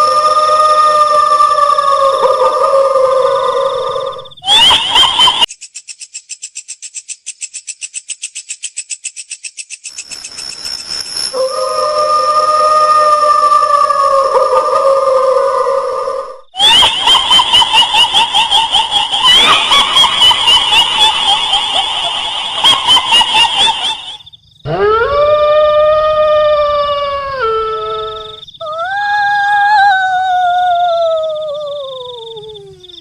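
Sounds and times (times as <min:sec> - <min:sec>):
drawn-out wailing cries: 0:00.0 - 0:05.4, 0:11.4 - 0:32.4
shrill cackling laugh: 0:04.4 - 0:05.5, 0:16.6 - 0:24.2.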